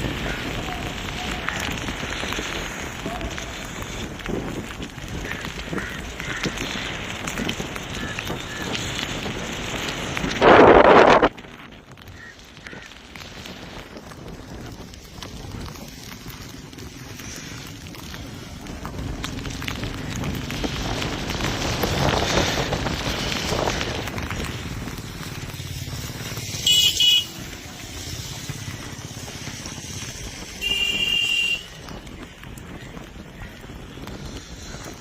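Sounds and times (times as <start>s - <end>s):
vehicle horn blasts: 26.6s - 27.4s, 30.6s - 31.8s.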